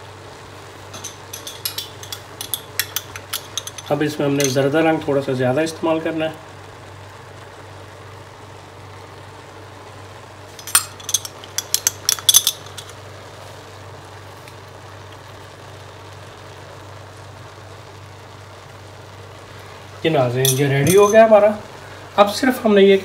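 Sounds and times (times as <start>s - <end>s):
steady low hum: 0.0s - 22.6s
metal and glass utensils clinking: 0.9s - 4.7s, 10.6s - 13.0s, 20.4s - 21.3s.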